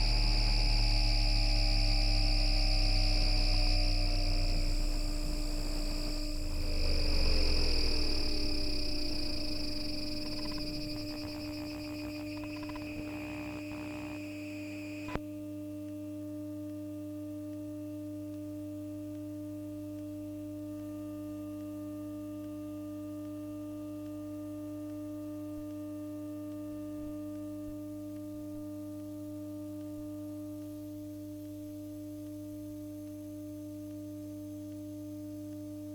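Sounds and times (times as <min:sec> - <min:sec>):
warbling high-pitched pattern: 0:00.0 - 0:14.4
electrical hum of fixed tones: 0:00.0 - 0:15.2
click: 0:08.3 - 0:15.2.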